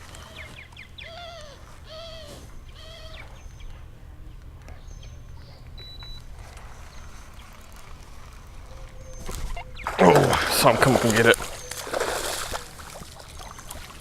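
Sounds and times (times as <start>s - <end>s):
bird calling: 0.0s - 14.0s
faint high chirps: 8.6s - 14.0s.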